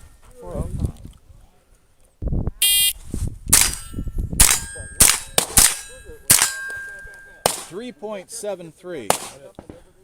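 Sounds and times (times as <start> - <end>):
shot timer beep: 2.6 - 3.0
rifle shots: 3.5 - 6.7, 7.4 - 7.8, 9.1 - 9.4
steel target metallic ring: 3.6 - 7.8.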